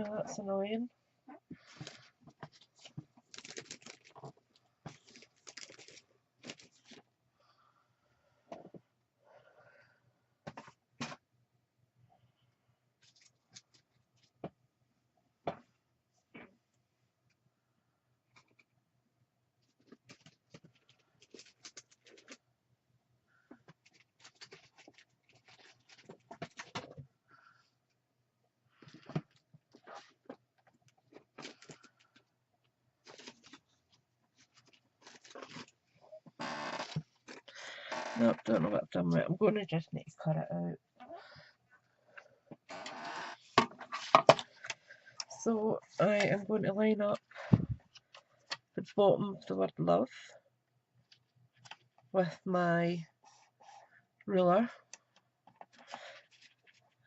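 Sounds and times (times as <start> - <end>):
paper and plastic rustling: 1.5 - 7.1, 19.6 - 22.4, 23.7 - 27.0, 28.7 - 32.3, 33.0 - 36.0, 55.5 - 57.0
hands rummaging through craft supplies: 1.5 - 7.2, 23.5 - 27.1, 28.8 - 36.3, 55.0 - 57.0.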